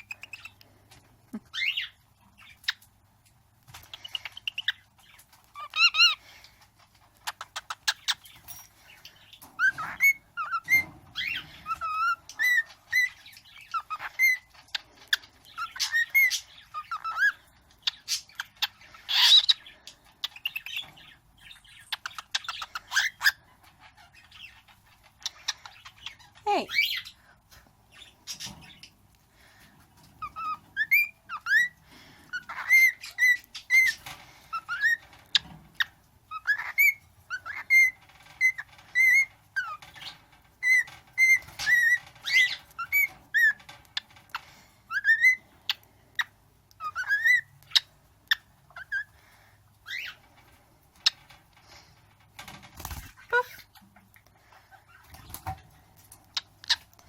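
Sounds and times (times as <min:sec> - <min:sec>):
cockatiel whistling: 0:30.3 - 0:31.7.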